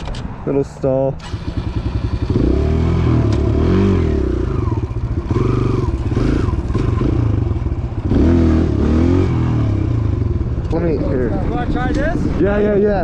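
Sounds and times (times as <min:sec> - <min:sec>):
pit bike engine revving: 0:01.2 - 0:10.8.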